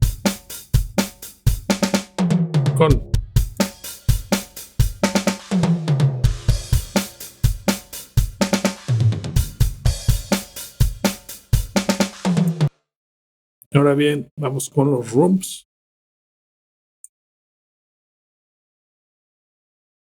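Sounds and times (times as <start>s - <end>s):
drum kit playing a groove: 0.0s - 12.7s.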